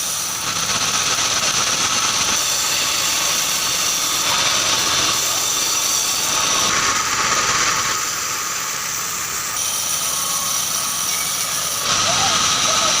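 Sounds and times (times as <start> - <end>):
band sawmill whining: 0.0 - 13.0.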